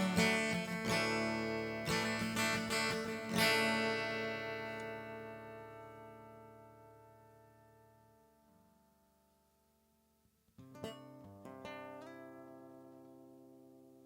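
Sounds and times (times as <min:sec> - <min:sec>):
guitar chords strummed: 0:00.0 - 0:08.5.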